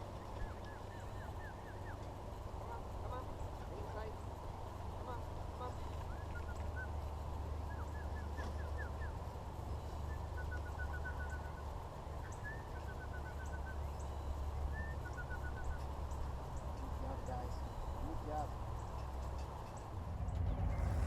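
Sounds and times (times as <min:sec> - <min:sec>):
small bird chirping: 0:00.0 - 0:02.2, 0:05.6 - 0:21.0
steady low rumble: 0:13.1 - 0:21.0.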